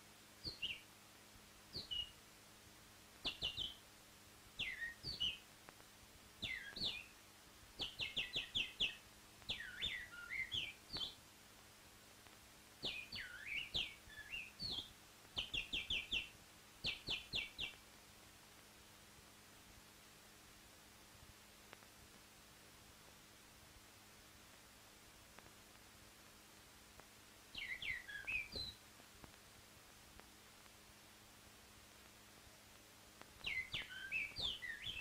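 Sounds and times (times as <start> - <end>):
faint hum and hiss: 0.0 - 35.0
bird chirping: 0.4 - 0.9, 1.7 - 2.2, 3.2 - 3.8, 4.6 - 5.5, 6.4 - 7.2, 7.8 - 11.2, 12.8 - 17.8, 27.5 - 28.8, 33.4 - 35.0.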